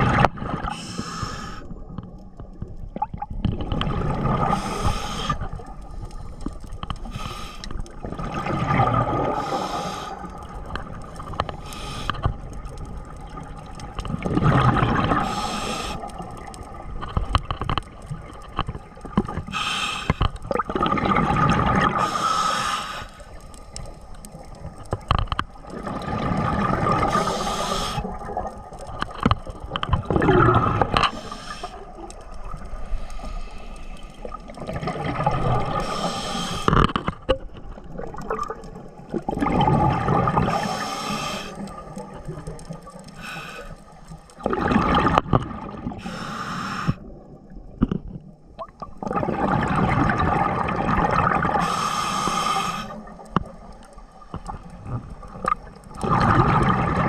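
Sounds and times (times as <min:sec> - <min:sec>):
exhaled bubbles gurgling: 0:00.0 - 0:57.0
scuba regulator inhale hiss: 0:00.7 - 0:01.8, 0:04.5 - 0:05.5, 0:07.0 - 0:07.8, 0:09.4 - 0:10.4, 0:11.6 - 0:12.4, 0:15.2 - 0:16.2, 0:19.4 - 0:20.3, 0:22.0 - 0:23.4, 0:27.0 - 0:28.2, 0:31.0 - 0:32.0, 0:32.8 - 0:34.3, 0:35.7 - 0:36.8, 0:40.4 - 0:41.8, 0:43.1 - 0:44.0, 0:46.0 - 0:47.1, 0:51.6 - 0:53.2.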